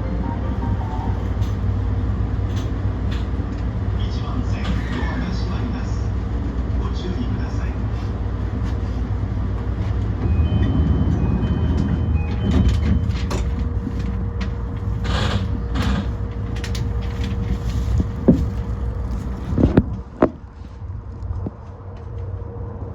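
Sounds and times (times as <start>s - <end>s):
electric train rumbling on rails: 0.0s - 22.9s.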